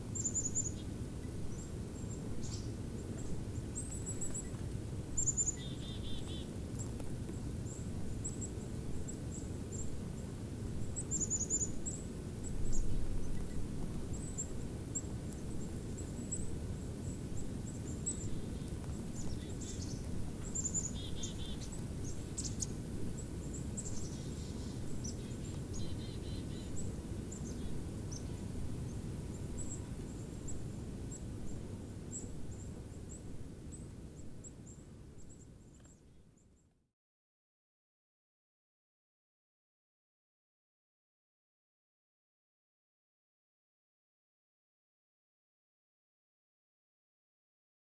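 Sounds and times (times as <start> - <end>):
small birds chirping: 0.1 - 36.7.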